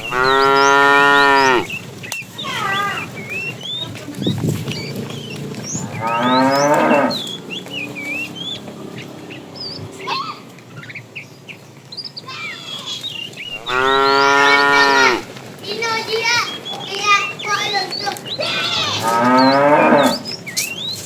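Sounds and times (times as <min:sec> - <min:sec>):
cattle mooing: 0:00.0 - 0:01.8, 0:04.4 - 0:10.5, 0:13.5 - 0:15.3, 0:18.4 - 0:20.4.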